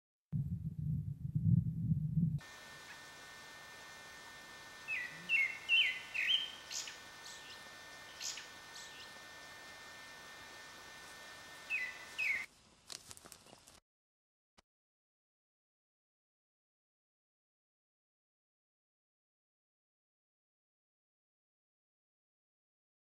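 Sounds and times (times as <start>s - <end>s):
steady hiss: 2.4s - 12.8s
small birds chirping: 4.7s - 9.8s, 11.5s - 12.5s.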